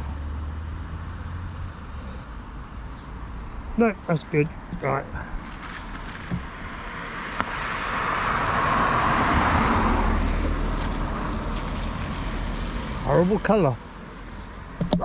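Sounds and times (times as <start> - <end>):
car passing by: 4.1 - 14.8.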